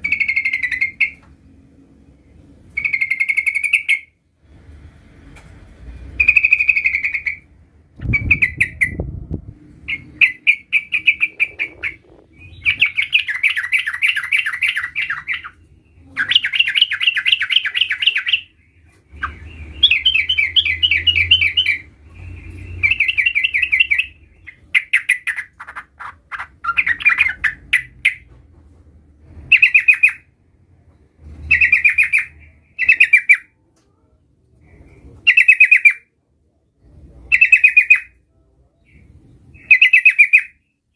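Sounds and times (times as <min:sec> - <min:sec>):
bird chattering song: 0:00.0 - 0:01.3, 0:02.7 - 0:04.2, 0:06.2 - 0:09.2, 0:09.8 - 0:28.3, 0:29.5 - 0:30.3, 0:31.4 - 0:33.5, 0:34.7 - 0:36.1, 0:37.3 - 0:38.2, 0:38.8 - 0:40.9.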